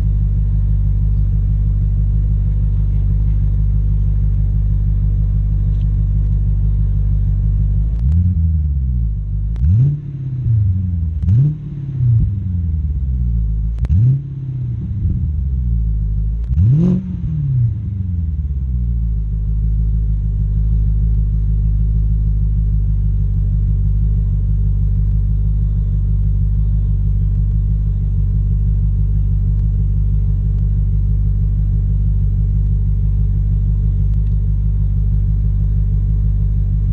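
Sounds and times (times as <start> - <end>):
car engine revving: 0.0 - 19.4
car engine idling: 0.0 - 36.9.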